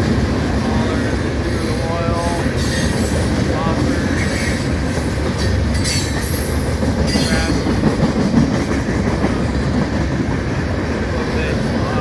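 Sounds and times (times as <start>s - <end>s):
steel wheels rumbling on rail: 0.0s - 12.0s
high wheel squeals: 2.2s - 3.3s, 4.2s - 7.7s.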